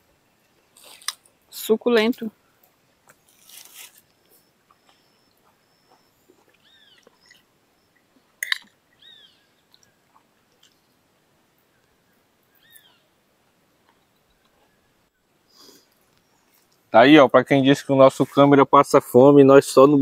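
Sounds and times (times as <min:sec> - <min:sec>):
bird calling: 0:03.9 - 0:10.1, 0:11.7 - 0:13.2
clicks of people eating: 0:09.6 - 0:10.8.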